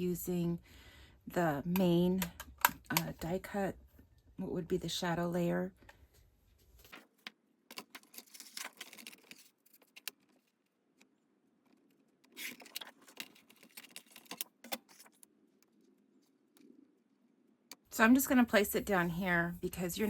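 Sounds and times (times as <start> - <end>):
cardstock clicks and rustles: 6.8 - 10.6, 11.8 - 15.3.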